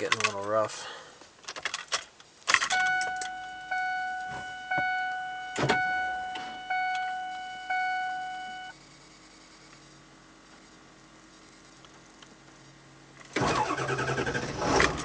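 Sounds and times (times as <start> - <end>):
key clicks: 2.7 - 3.4, 4.1 - 8.0
dashboard warning chime: 2.7 - 8.7
faint low hum: 2.7 - 13.3.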